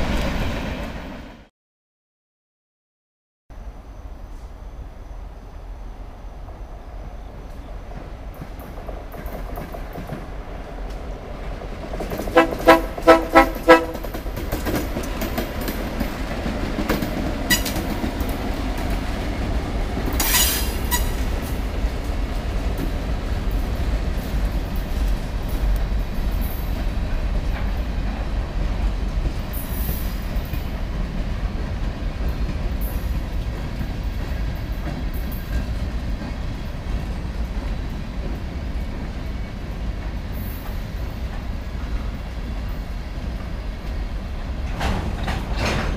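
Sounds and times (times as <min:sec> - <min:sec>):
freight train rumbling: 0:00.0 - 0:01.5, 0:03.5 - 0:45.9
train horn blasts: 0:12.3 - 0:14.2.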